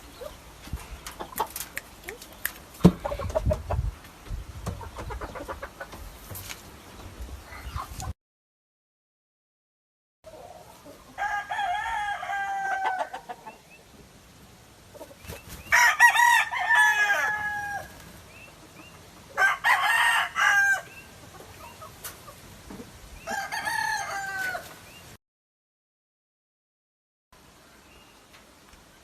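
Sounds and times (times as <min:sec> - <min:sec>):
roosters crowing: 0:10.5 - 0:13.6, 0:15.6 - 0:18.3, 0:19.3 - 0:21.2, 0:23.2 - 0:25.0.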